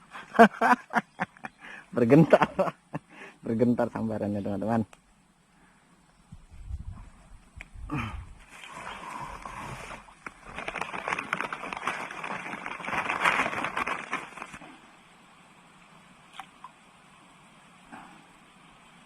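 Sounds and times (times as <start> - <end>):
fish splashing in water: 8.7 - 14.6.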